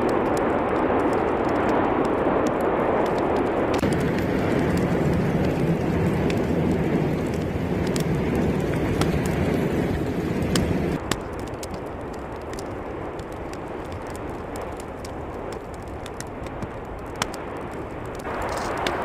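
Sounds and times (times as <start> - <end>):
sharp cracks: 0.0 - 19.0
volcanic eruption deep rush: 0.0 - 19.0.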